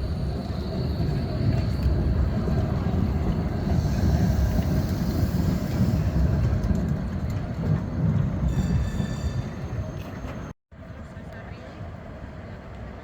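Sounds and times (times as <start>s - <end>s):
tram running along track: 0.0s - 13.0s.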